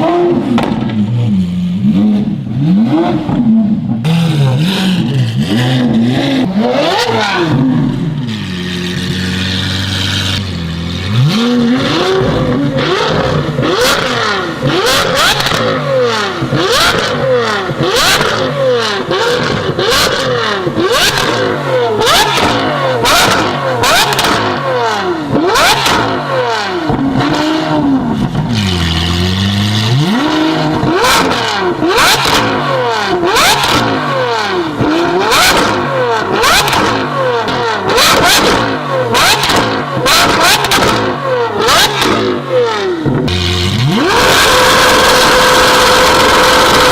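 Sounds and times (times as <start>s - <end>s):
car engine revving: 0.0s - 46.9s
exhaust pops and crackles: 0.4s - 1.1s, 16.4s - 24.6s, 30.7s - 32.6s, 34.8s - 42.4s, 43.0s - 46.9s.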